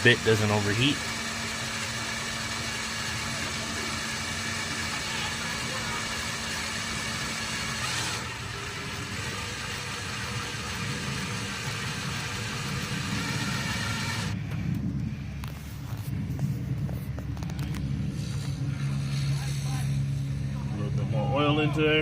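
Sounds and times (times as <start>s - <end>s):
electric drill grinding into metal: 0.0s - 14.4s.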